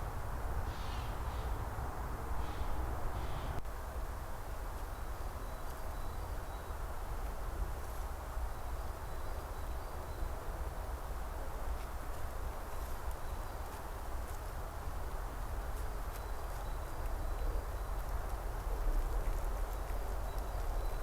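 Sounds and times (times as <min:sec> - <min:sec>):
dense hiss: 0:00.6 - 0:01.7.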